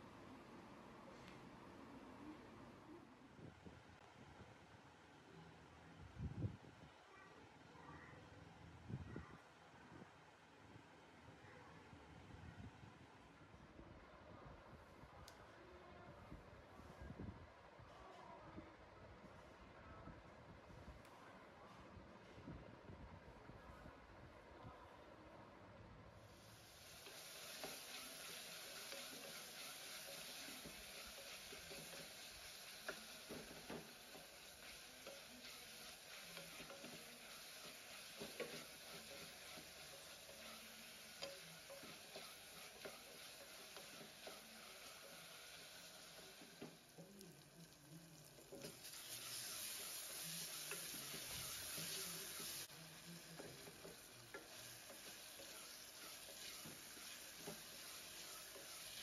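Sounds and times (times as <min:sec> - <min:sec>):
vegetables sizzling in oil: 0:26.3 - 0:59.0
spatula scraping and tapping pot: 0:27.0 - 0:47.2, 0:48.3 - 0:59.0.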